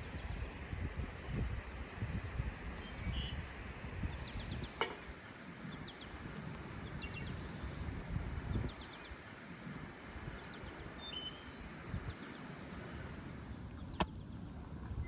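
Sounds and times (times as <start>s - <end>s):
faint bird chirps: 2.8s - 4.8s, 10.3s - 12.8s.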